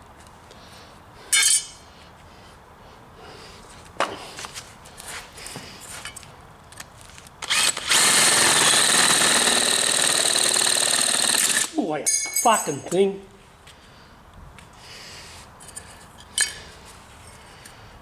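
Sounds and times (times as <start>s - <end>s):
power drill whining: 7.4s - 11.7s.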